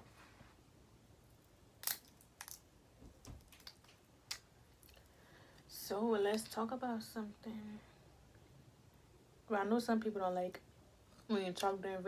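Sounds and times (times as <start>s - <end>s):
crawfish shells cracking: 1.7s - 5.1s.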